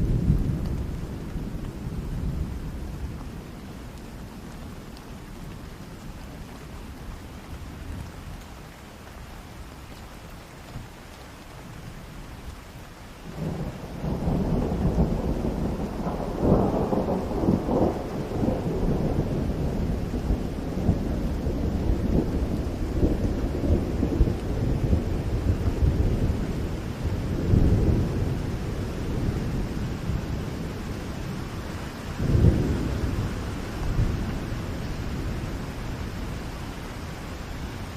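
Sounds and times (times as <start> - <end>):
rolling thunder: 0.0 - 3.5, 13.3 - 36.5
steady rain: 0.0 - 37.9.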